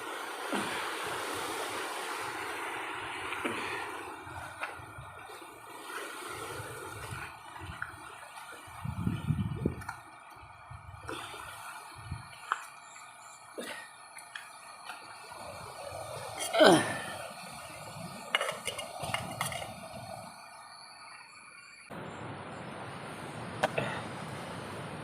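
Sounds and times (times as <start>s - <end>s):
steady rushing noise: 21.9s - 25.0s.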